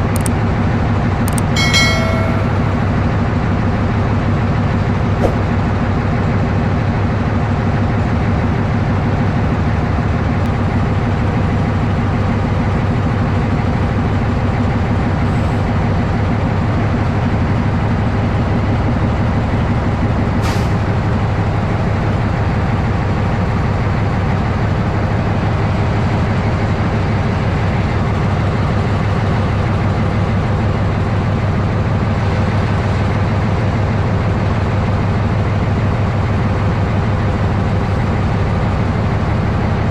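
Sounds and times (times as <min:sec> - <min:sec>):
diesel locomotive engine humming: 0:00.0 - 0:39.9
sharp click: 0:00.1 - 0:00.4, 0:01.3 - 0:02.8.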